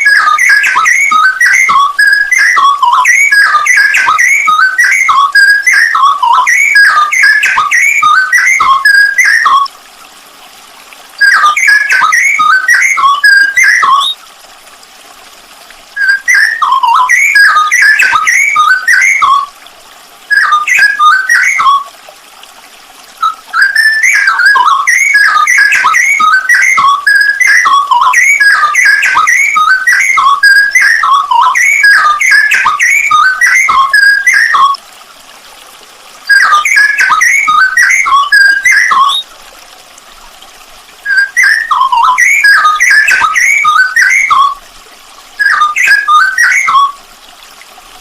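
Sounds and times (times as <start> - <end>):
songbird whistling loud phrases: 0.0 - 9.7, 11.2 - 14.2, 16.0 - 19.5, 20.3 - 21.9, 23.2 - 34.8, 36.3 - 39.2, 41.0 - 44.6, 45.4 - 47.0.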